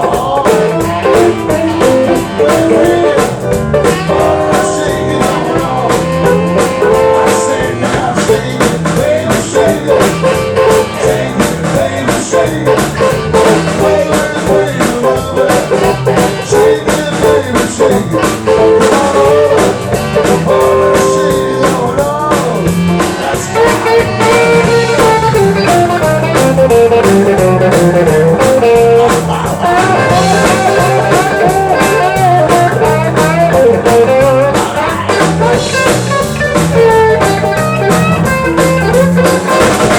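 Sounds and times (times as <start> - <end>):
guitar: 0.0 - 39.9
live blues band playing: 0.0 - 39.9.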